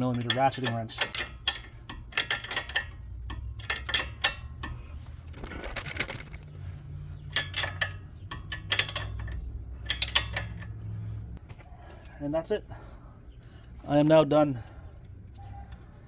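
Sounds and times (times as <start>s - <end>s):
wrench clicking on metal: 0.0s - 4.8s
low hum: 1.2s - 13.9s.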